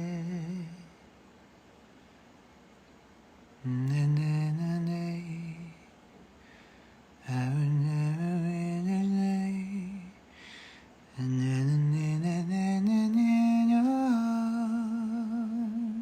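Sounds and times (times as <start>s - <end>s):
man humming a slow melody: 0.0s - 1.0s, 3.6s - 5.9s, 7.2s - 10.2s, 11.2s - 16.0s.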